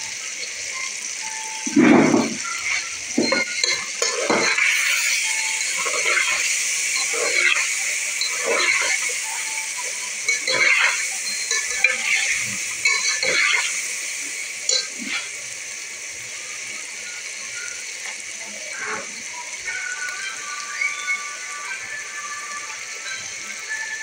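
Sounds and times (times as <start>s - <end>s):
chicken wings sizzling in oil: 0.0s - 24.0s
metal fork scraping a pot: 1.8s - 4.9s, 7.0s - 9.0s, 10.3s - 13.7s.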